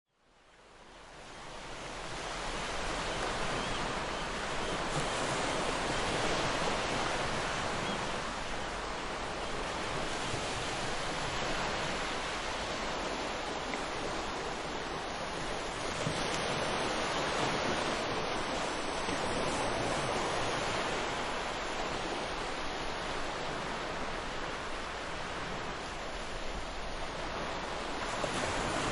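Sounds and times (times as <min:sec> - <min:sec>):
ocean waves breaking: 0:01.1 - 0:28.9.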